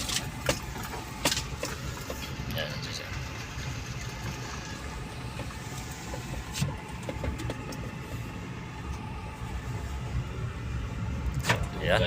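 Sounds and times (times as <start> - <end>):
tyre and road noise: 0.0 - 12.0.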